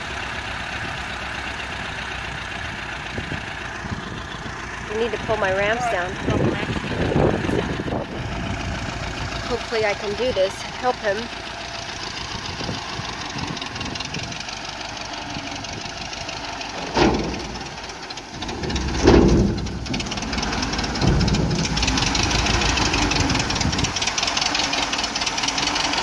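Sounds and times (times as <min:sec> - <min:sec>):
car engine running: 0:00.0 - 0:26.0
wheels thumping onto ramps: 0:15.3 - 0:26.0.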